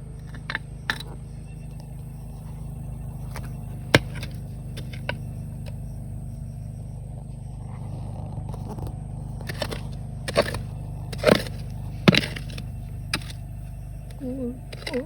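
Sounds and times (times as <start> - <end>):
steady low rumble: 0.0 - 15.0
hand tool digging into gravel: 3.3 - 5.2, 8.6 - 13.5, 14.1 - 15.0.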